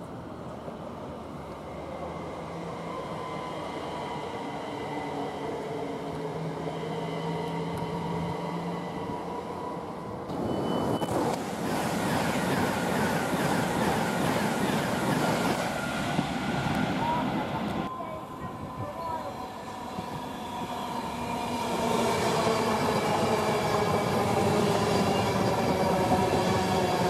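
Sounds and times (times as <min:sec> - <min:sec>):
express train passing: 0:00.0 - 0:27.0
train wheels rumbling: 0:10.3 - 0:17.9.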